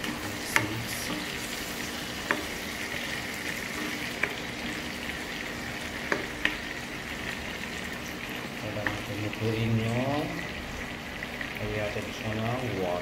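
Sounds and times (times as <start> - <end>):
spatula stirring food: 0.0 - 11.4
food frying in a wok: 0.0 - 13.0
spatula knocking against pan: 2.2 - 2.6.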